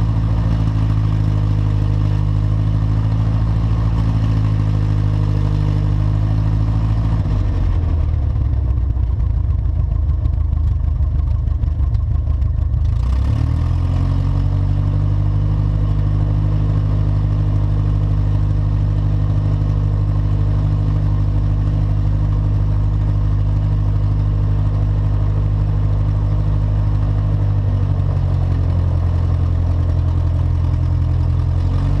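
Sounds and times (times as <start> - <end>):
light aircraft piston engine: 0.0 - 32.0.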